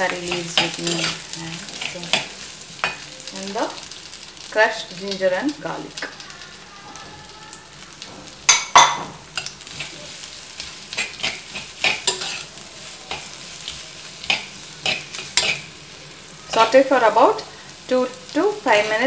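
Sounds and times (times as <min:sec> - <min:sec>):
food sizzling in hot oil: 0:00.0 - 0:19.0
steel spoon scraping a pot: 0:10.6 - 0:12.5, 0:14.2 - 0:15.7.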